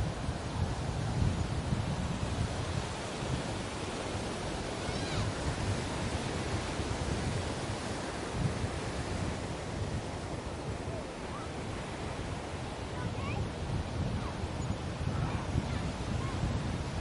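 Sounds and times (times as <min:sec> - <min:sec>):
ocean surf washing onto beach: 0:00.0 - 0:17.0.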